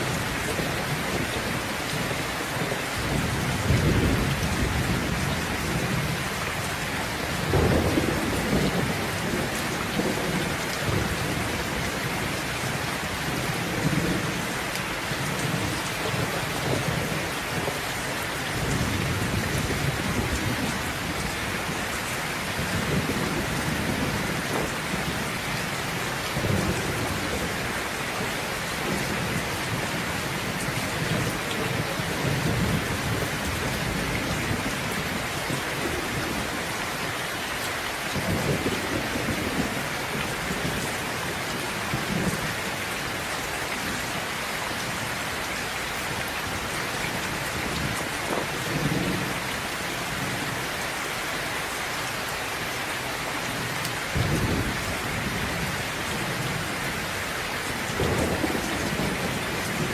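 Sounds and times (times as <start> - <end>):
heavy rain falling: 0.0 - 59.9
thunder rumbling: 2.6 - 14.5, 53.6 - 57.1, 57.7 - 59.9.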